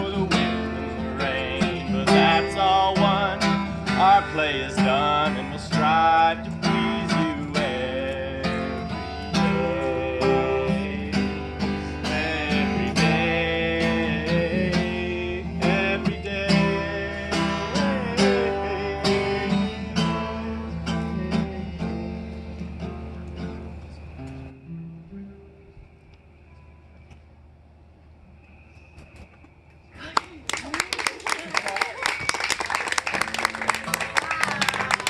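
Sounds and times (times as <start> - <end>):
acoustic guitar strumming: 0.0 - 25.8, 33.2 - 35.0.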